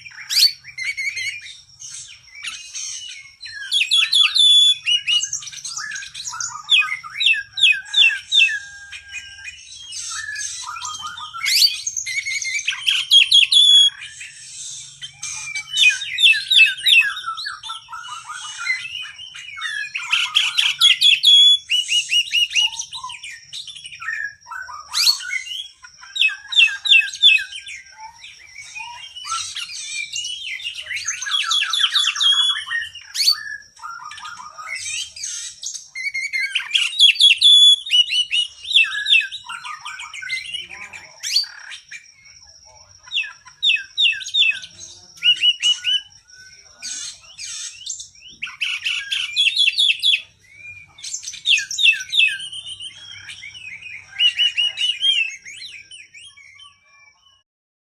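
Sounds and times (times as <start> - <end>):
bird singing trills and whistles: 0.0 - 57.4.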